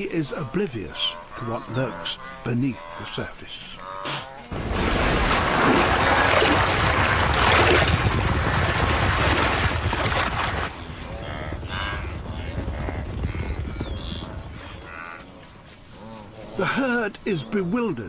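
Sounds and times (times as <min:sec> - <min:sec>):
wildebeest calls: 0:00.0 - 0:04.5, 0:11.2 - 0:18.0
river water splashing: 0:04.1 - 0:10.7.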